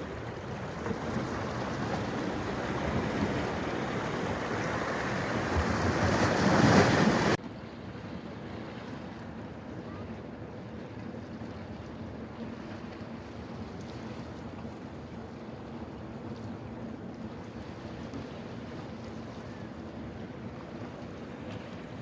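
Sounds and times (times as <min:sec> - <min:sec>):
water rushing: 0:00.0 - 0:07.4.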